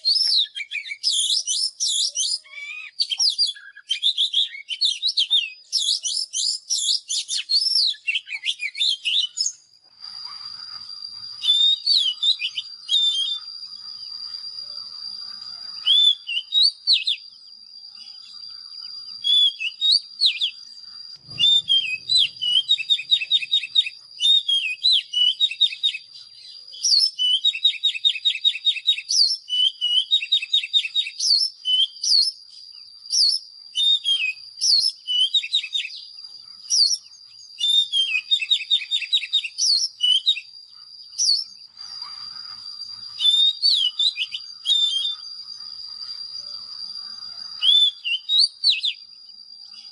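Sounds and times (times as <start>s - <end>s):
bird singing whistles and trills: 0.0s - 49.9s
high-pitched whine: 9.5s - 26.7s, 38.2s - 49.9s.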